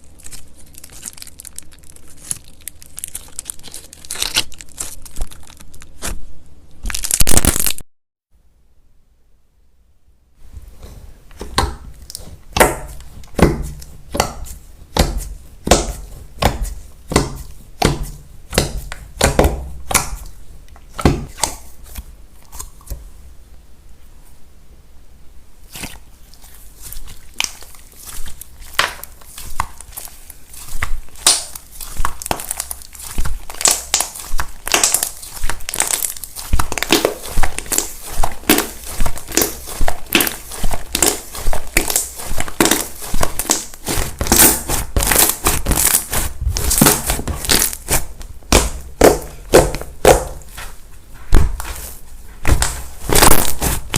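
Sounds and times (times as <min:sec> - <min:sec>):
slime squished with crackling clicks: 0:26.8 - 0:50.4.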